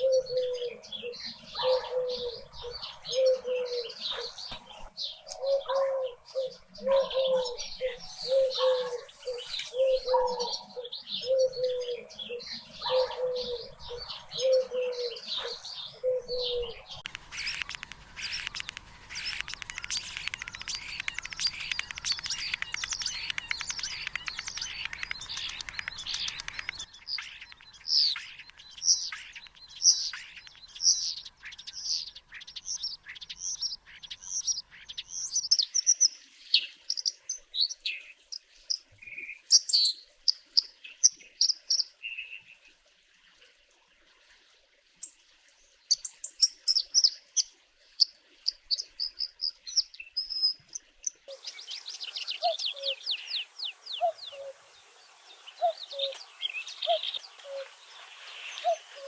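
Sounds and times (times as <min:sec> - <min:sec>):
low bird cooing: 0:00.0 - 0:26.8, 0:51.3 - 0:54.8, 0:55.5 - 0:59.0
birds chirping: 0:00.0 - 0:42.7, 0:45.8 - 0:59.0.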